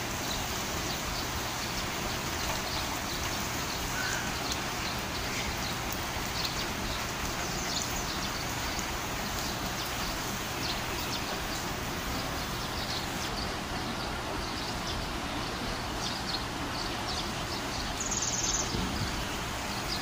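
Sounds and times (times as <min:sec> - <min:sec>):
rain on tiles: 0:00.0 - 0:20.0
rain splashing into water: 0:00.0 - 0:20.0
high bird chirps: 0:17.2 - 0:19.2.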